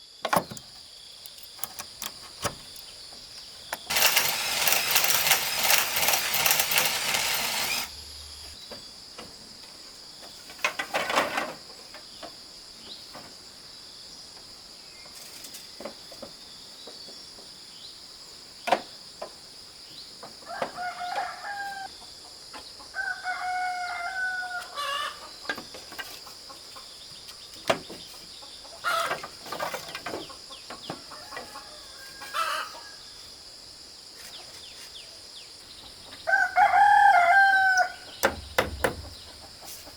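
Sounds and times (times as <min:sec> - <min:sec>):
rooster crowing: 0:20.4 - 0:21.9, 0:23.0 - 0:25.2, 0:31.0 - 0:33.1, 0:36.3 - 0:38.2
sharp knocks: 0:38.2 - 0:39.4.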